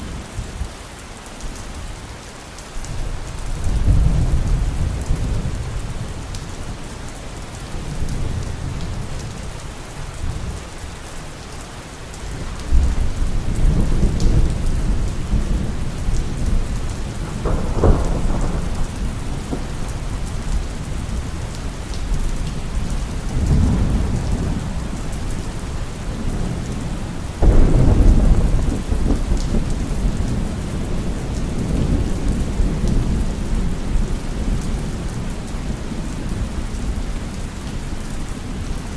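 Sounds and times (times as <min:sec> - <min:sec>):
heavy rain: 0:00.0 - 0:38.9
rolling thunder: 0:03.4 - 0:06.3, 0:12.4 - 0:37.1.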